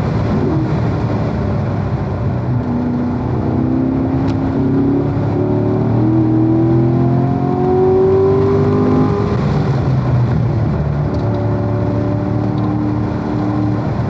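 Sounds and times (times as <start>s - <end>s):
car engine pulling under throttle: 0.0s - 14.0s.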